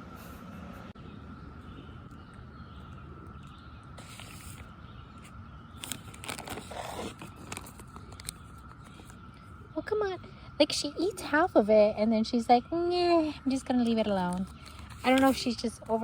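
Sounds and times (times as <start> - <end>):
distant cicadas humming: 0.0 - 16.0
close rustling and scraping: 4.0 - 9.2, 13.8 - 16.0.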